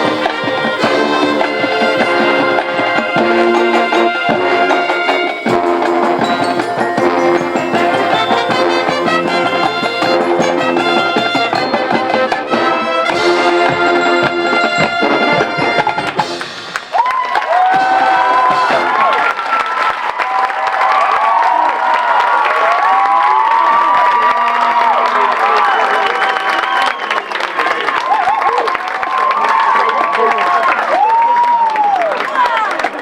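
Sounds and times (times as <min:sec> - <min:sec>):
crowd cheering and whistling: 0:00.0 - 0:14.2, 0:16.1 - 0:33.0
marching band playing brass and drums: 0:00.0 - 0:19.7.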